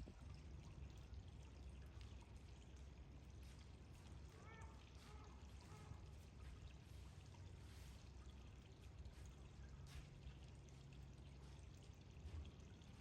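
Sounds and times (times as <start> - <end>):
running water: 0.0 - 13.0.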